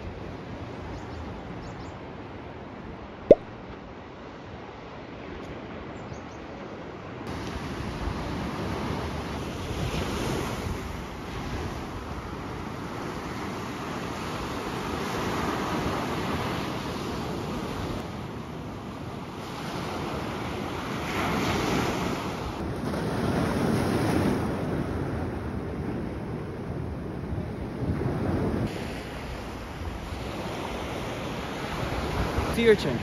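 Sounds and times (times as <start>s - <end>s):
sea waves breaking on beach: 7.3s - 33.0s.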